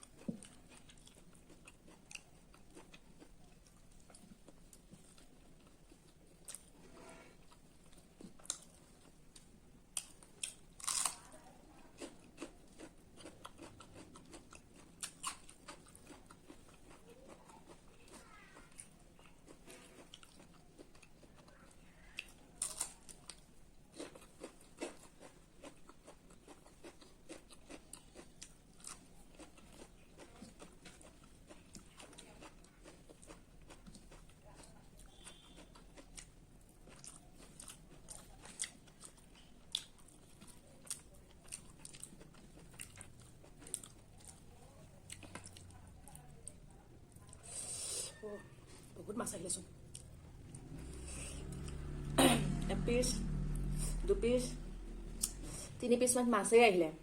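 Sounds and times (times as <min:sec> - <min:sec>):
person chewing: 0:00.0 - 0:49.0, 0:49.6 - 0:54.0, 0:54.6 - 0:55.8
crunchy bites: 0:09.9 - 0:11.3.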